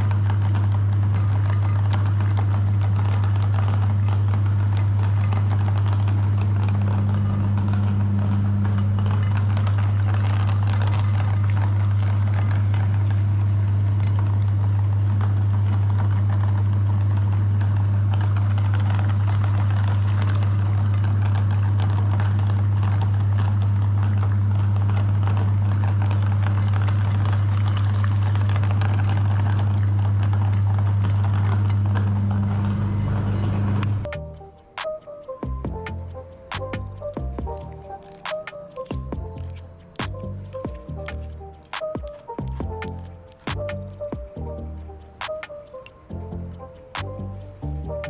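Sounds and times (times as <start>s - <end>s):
meat grinder motor hum: 0.0s - 34.2s
crackling rattle of grinding: 0.0s - 48.0s.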